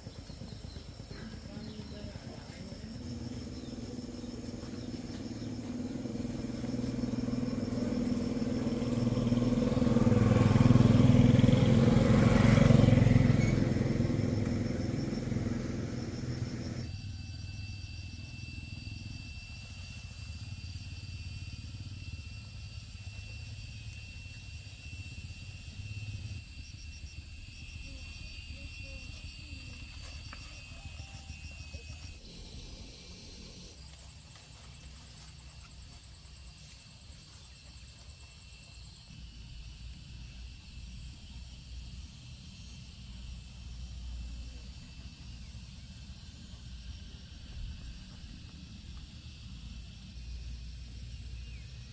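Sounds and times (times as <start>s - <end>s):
motor vehicle engine running: 0.0s - 17.3s, 18.0s - 40.0s.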